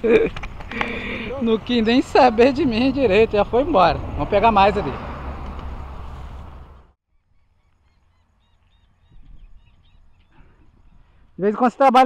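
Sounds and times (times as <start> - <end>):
wind or handling noise burst: 0.2 - 7.0
faint birds calling: 0.6 - 3.8, 5.3 - 11.5.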